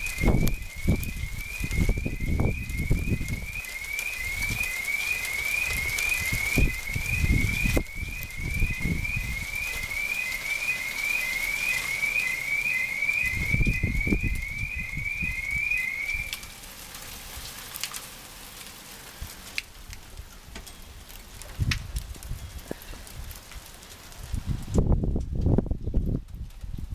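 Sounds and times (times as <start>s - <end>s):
alarm chirping rising tone: 0.0s - 16.5s
hail pattering: 0.0s - 26.9s
hailstones ticking: 0.0s - 26.9s.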